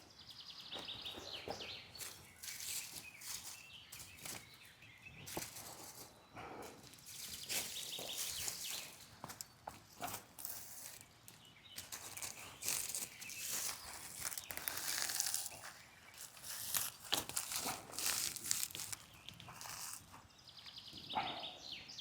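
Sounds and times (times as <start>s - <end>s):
kindling crackling and snapping: 10.0s - 20.1s.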